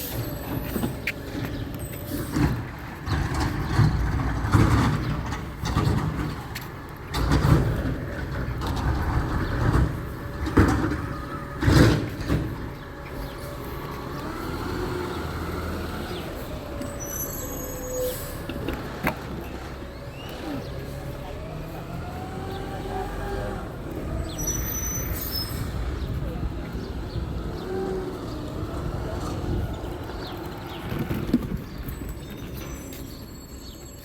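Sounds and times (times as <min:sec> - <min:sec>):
garbage truck clanks and bangs: 0:00.0 - 0:33.9
low engine rumble: 0:00.0 - 0:34.0.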